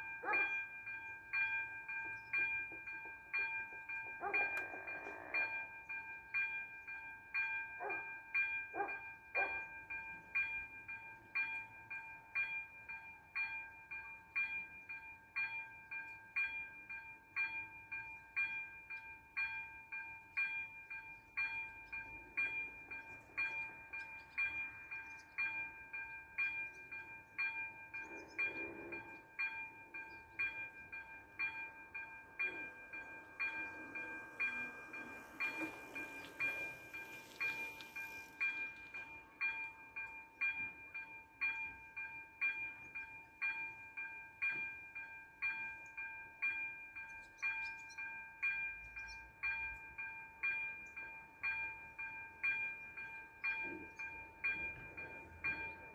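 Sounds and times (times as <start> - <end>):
level crossing bell ringing: 28.6 - 42.8.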